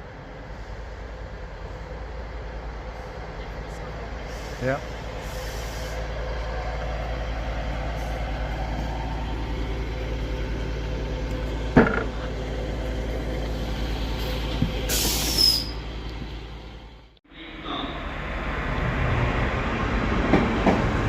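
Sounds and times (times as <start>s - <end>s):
diesel train engine idling: 0.0s - 21.0s
hissing air: 4.2s - 6.2s, 14.2s - 15.8s.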